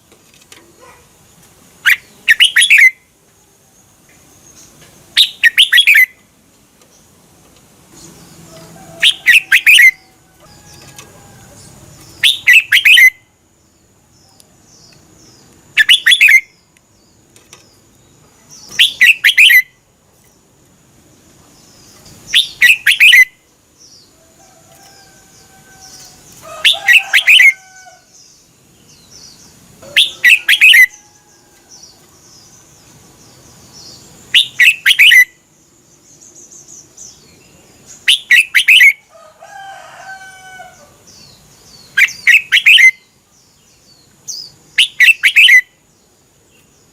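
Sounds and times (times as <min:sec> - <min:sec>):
bulbul singing: 0:01.8 - 0:03.2, 0:03.8 - 0:06.3, 0:07.9 - 0:13.4, 0:14.2 - 0:19.9, 0:21.5 - 0:24.2, 0:25.0 - 0:39.1, 0:41.0 - 0:45.9.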